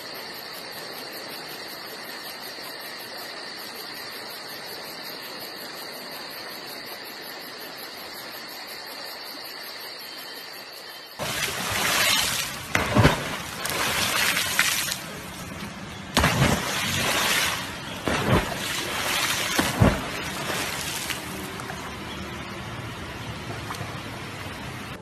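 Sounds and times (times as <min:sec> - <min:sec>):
dogs splashing into river: 0:11.2 - 0:22.5
water rushing: 0:11.2 - 0:25.0.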